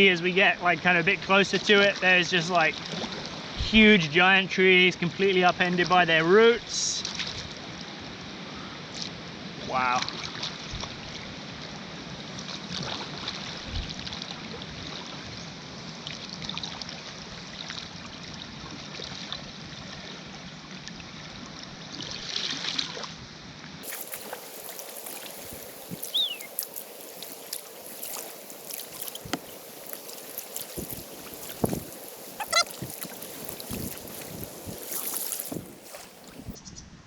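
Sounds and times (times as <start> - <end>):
river rapids rushing: 23.8 - 36.6
short falling bird chirp: 24.3 - 27.5.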